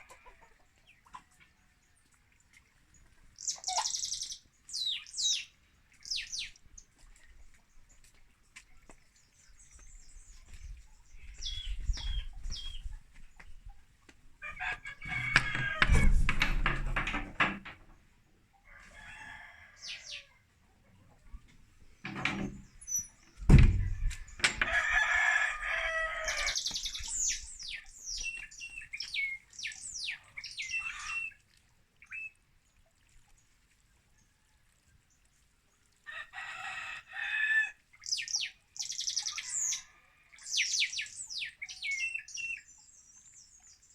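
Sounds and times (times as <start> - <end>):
small birds chirping: 0.2 - 14.0, 21.3 - 24.5, 25.6 - 31.4, 38.0 - 43.9
rooster crowing: 14.4 - 16.2, 18.7 - 20.3, 24.5 - 26.6, 36.1 - 37.8
low thump: 23.4 - 24.8.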